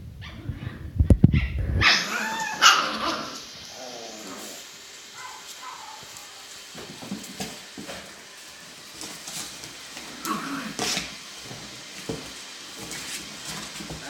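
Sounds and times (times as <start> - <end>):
puppy whining and crying: 0.2 - 4.6
puppies scrabbling and scratching: 5.2 - 14.0.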